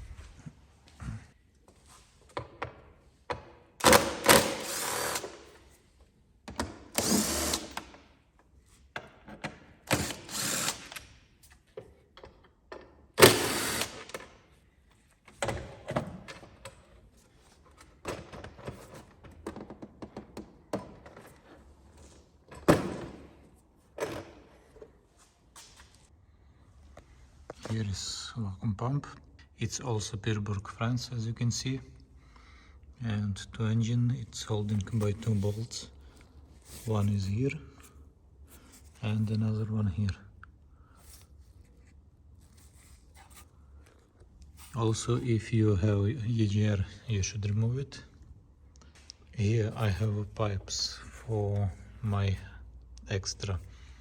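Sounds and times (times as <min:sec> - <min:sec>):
workshop tool bursts: 0:03.8 - 0:05.5, 0:06.9 - 0:08.0, 0:09.8 - 0:11.1, 0:13.2 - 0:14.3.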